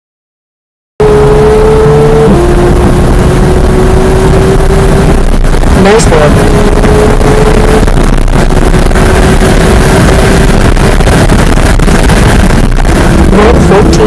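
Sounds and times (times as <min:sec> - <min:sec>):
sports car engine running hard: 0:01.0 - 0:14.0
wind and road noise: 0:01.0 - 0:14.0.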